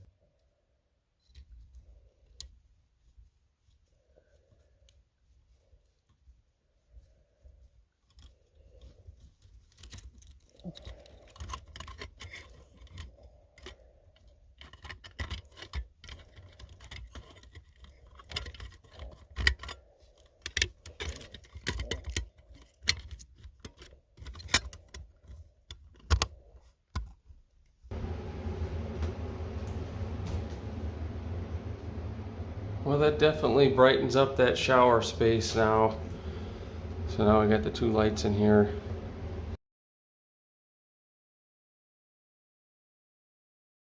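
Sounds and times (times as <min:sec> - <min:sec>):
clicks and rattles of small tools: 0:08.0 - 0:27.3
steady hum with hiss: 0:27.9 - 0:39.6.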